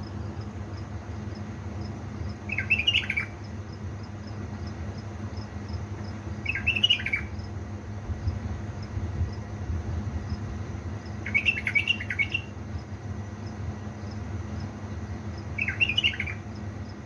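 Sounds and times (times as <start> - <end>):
bird warbling: 2.5 - 3.5, 6.4 - 7.4, 11.2 - 12.6, 15.6 - 16.5.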